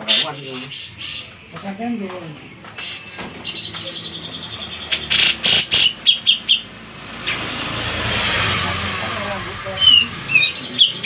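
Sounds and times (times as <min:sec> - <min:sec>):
songbird trilling and chirping: 0:00.0 - 0:07.5, 0:09.7 - 0:11.0
broad rushing noise: 0:03.3 - 0:11.0.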